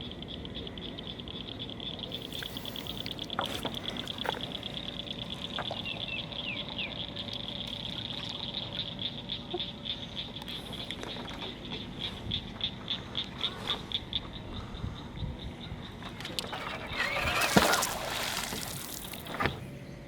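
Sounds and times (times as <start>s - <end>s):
frogs trilling: 0.0s - 20.0s.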